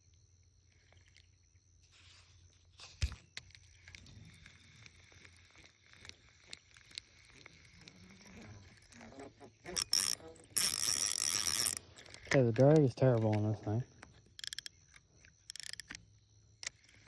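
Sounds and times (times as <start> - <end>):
insects chirring: 0.0 - 17.0
small clicks and handling noises: 2.8 - 17.0.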